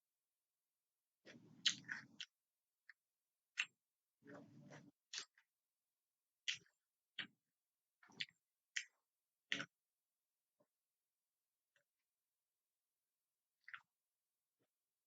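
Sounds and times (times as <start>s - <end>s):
mouth clicks and smacks: 1.2s - 5.5s, 6.4s - 7.4s, 8.0s - 9.8s, 13.6s - 14.0s.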